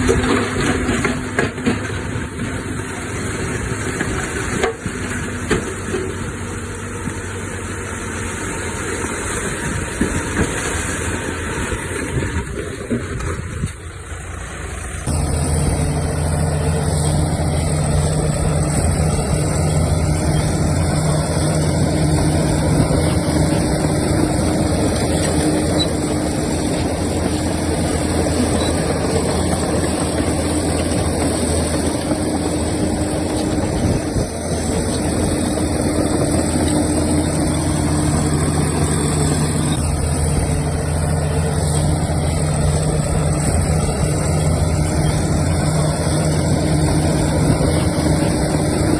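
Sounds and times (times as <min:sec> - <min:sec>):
heavy diesel machinery engine: 0:00.0 - 0:48.9.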